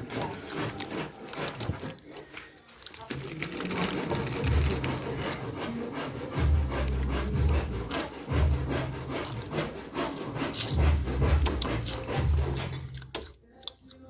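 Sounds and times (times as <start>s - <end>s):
workshop tool scraping: 0.0s - 13.4s.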